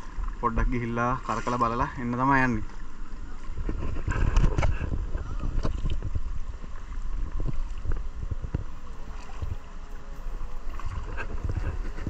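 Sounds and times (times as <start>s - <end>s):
water splashing around boat: 0.0s - 12.0s
wind buffeting microphone: 3.0s - 12.0s.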